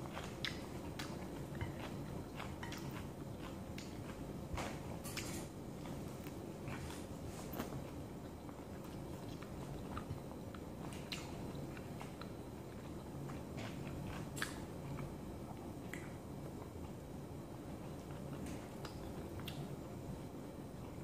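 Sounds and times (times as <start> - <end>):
person chewing and biting food: 0.0 - 16.2
low room hum: 0.0 - 21.0.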